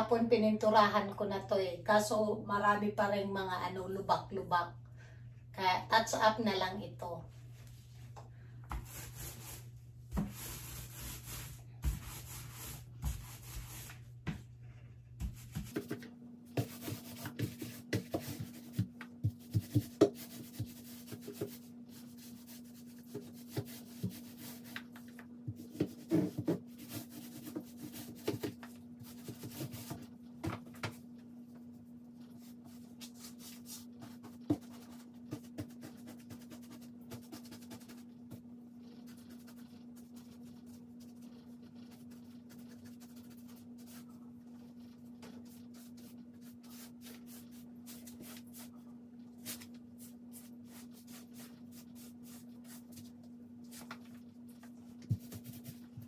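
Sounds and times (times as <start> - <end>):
faint steady hum: 0.0 - 56.0
paintbrush scraping swishes: 8.8 - 15.9.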